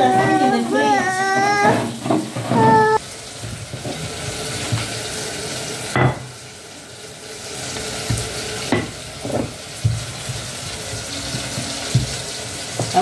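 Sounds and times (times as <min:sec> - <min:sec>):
food sizzling in a pan: 0:00.0 - 0:13.0
kitchen knocks: 0:00.1 - 0:04.0.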